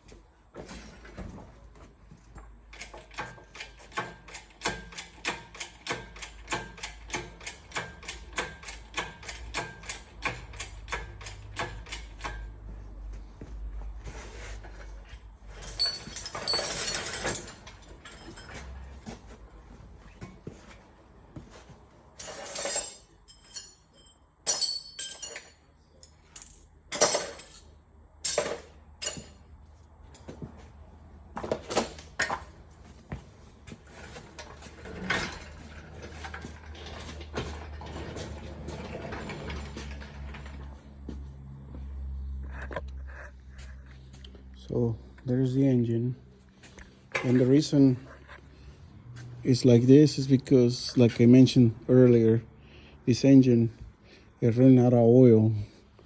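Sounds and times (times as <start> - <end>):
hoist metallic clicking: 2.7 - 12.4.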